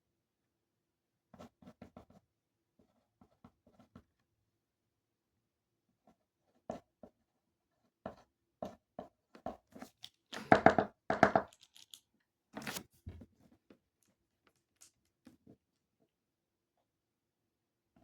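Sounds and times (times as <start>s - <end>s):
tearing and crinkling handling noise: 12.6s - 12.9s.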